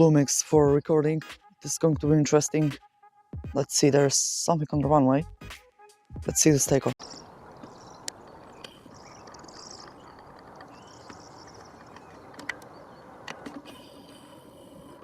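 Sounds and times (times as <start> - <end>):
steady low rumble: 6.9 - 15.0
small birds chirping: 7.0 - 15.0.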